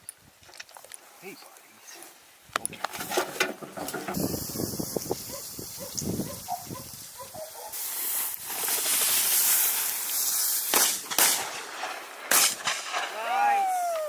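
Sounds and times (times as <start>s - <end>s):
rustling through dry grass: 0.0s - 14.0s
loud even hiss: 3.9s - 14.0s
sharp cracks: 7.8s - 14.0s.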